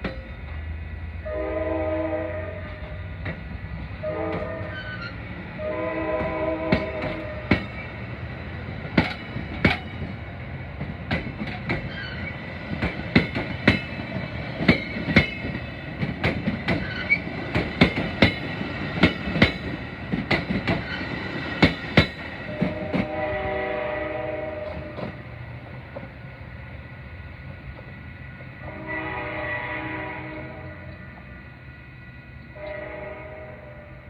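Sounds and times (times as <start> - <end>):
train horn: 1.2 - 3.1, 4.0 - 7.7, 22.4 - 25.2, 28.6 - 31.1, 32.4 - 34.0
faint high wheel squeal: 4.6 - 5.2
train wheels clacking over rail joints: 6.1 - 23.3.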